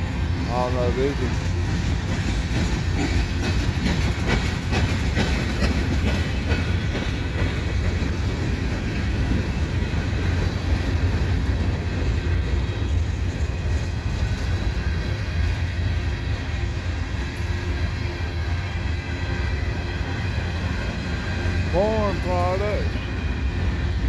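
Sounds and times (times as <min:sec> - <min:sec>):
freight train rumbling: 0:00.0 - 0:24.0
wheels clicking over rail joints: 0:00.3 - 0:13.4.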